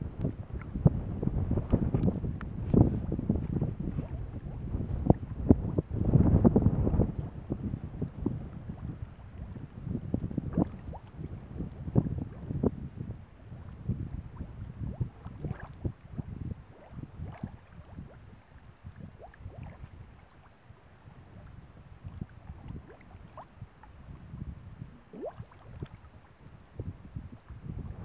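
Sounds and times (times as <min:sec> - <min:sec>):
wind buffeting microphone: 0:00.0 - 0:20.3, 0:21.0 - 0:28.0
water bubbling and plopping: 0:03.6 - 0:05.9, 0:08.0 - 0:12.7, 0:13.6 - 0:20.0, 0:22.0 - 0:24.2, 0:24.8 - 0:26.6.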